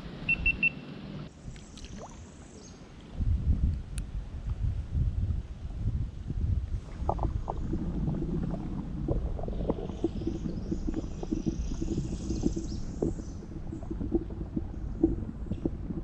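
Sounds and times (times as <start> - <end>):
water sloshing: 1.5 - 2.4, 6.8 - 16.0
wind rumble on microphone: 3.0 - 16.0.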